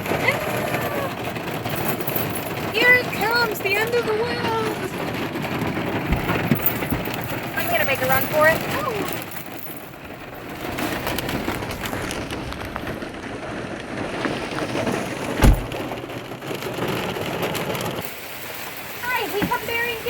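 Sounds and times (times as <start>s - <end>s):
heavy rain pattering: 0.0s - 20.0s
low thump: 5.9s - 7.2s, 15.4s - 15.9s.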